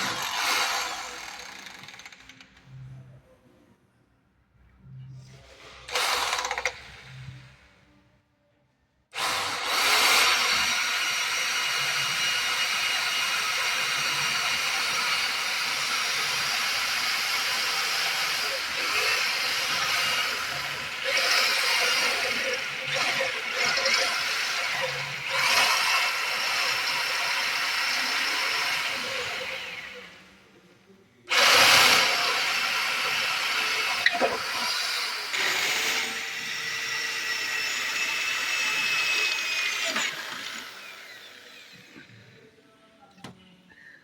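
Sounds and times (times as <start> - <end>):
small power tool whining: 9.2 - 30.2, 31.3 - 42.4.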